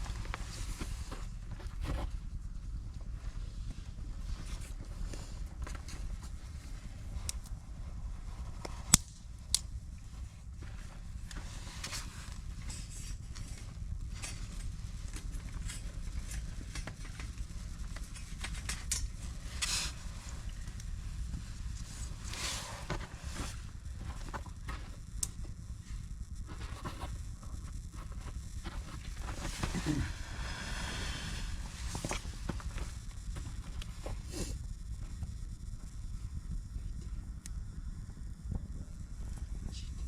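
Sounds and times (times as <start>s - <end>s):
low steady rumble: 0.0s - 40.0s
campfire crackling: 3.4s - 40.0s
sharp pops of fire: 8.6s - 9.7s.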